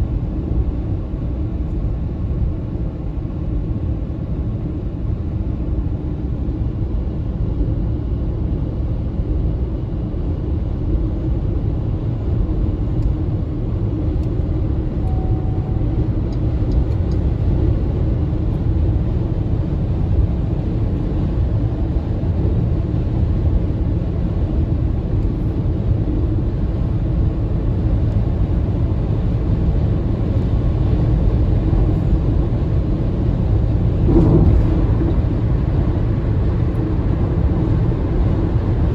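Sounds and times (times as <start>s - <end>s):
road and tyre rumble: 0.0s - 38.9s.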